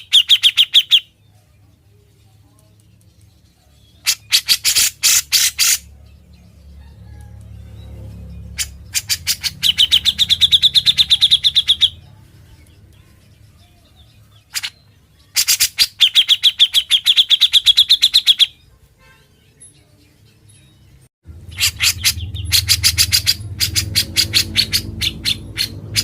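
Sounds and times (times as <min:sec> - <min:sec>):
bulbul rattling calls: 0:04.0 - 0:05.9, 0:21.4 - 0:26.0.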